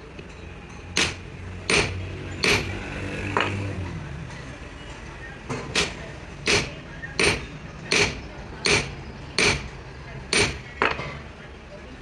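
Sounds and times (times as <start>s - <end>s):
hammer blows: 0.9s - 3.7s, 5.6s - 9.7s.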